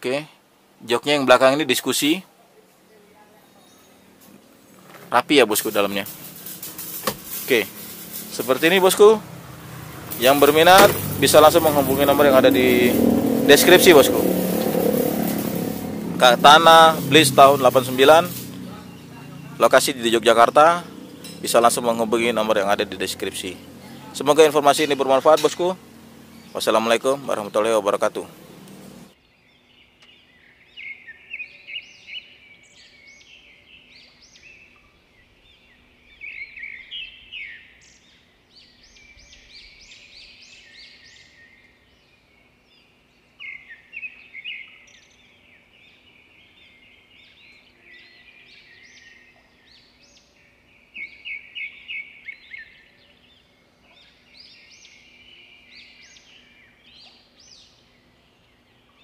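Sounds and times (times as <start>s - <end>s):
birds chirping high notes: 3.3s - 59.0s.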